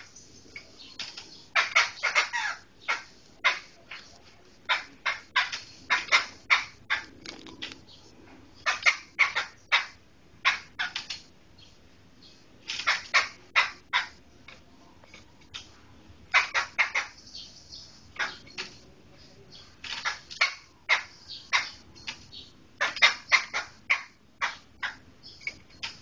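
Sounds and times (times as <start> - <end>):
laughingthrush harsh calls: 1.5 - 7.5, 8.6 - 11.1, 16.3 - 17.2, 18.1 - 18.6, 19.9 - 21.9, 22.8 - 25.0.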